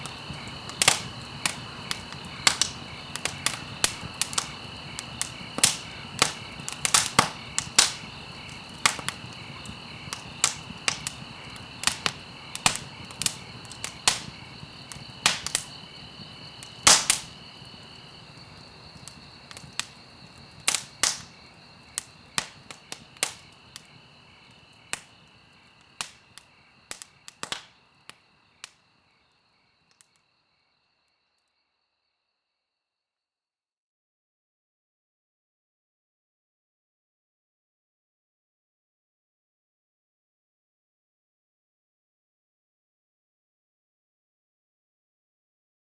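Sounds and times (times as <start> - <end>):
wood fire crackling and popping: 0.0 - 28.8.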